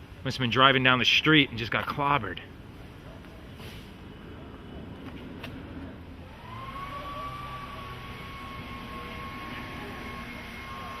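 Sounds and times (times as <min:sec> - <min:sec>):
high whine rising in pitch: 0:06.1 - 0:11.0.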